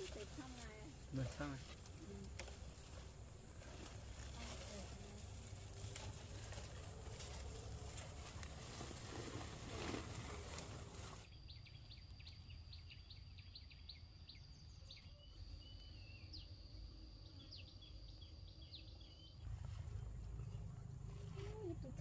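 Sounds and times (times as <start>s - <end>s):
outdoor background noise: 0.0s - 22.0s
high insect drone: 14.1s - 22.0s.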